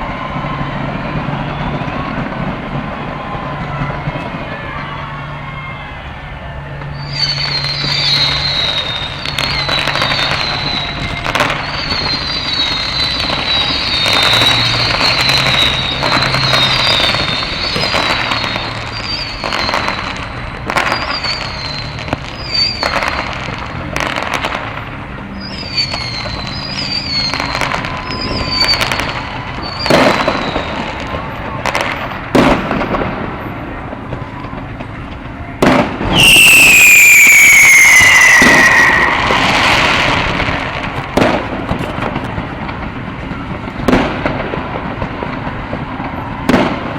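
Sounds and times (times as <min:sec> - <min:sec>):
fireworks bangs and crackling: 0:00.0 - 0:46.9
high wavering whistle: 0:06.9 - 0:20.0, 0:25.4 - 0:29.0, 0:36.1 - 0:40.6.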